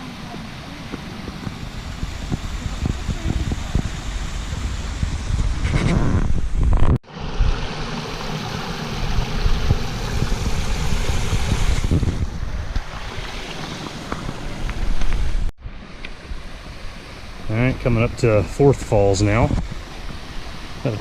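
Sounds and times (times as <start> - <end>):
wind buffeting microphone: 0.2 - 7.7, 9.0 - 13.4.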